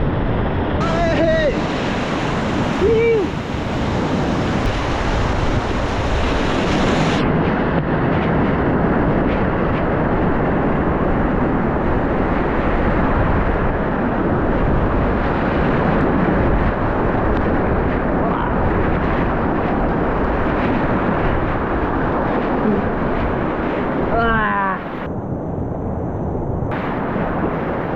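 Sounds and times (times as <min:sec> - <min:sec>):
river rapids roaring: 0:00.6 - 0:07.2.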